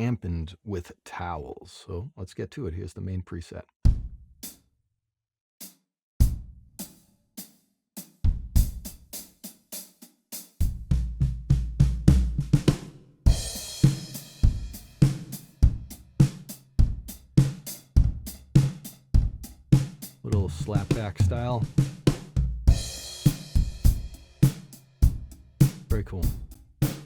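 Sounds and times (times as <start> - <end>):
drum kit beat: 3.9 - 4.6, 5.6 - 27.0.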